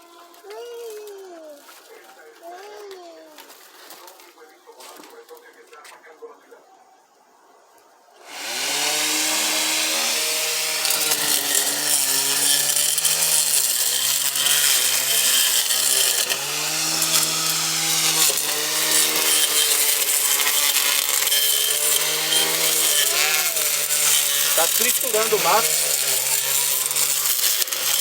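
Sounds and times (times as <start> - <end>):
blender motor whining: 8.3 - 28.0.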